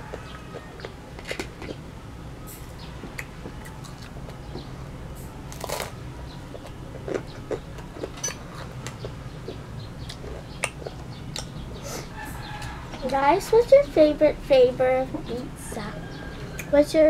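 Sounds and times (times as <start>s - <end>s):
crunchy food being chewed: 0.0s - 1.8s, 3.0s - 4.7s, 5.5s - 11.6s
low steady hum: 0.0s - 17.0s.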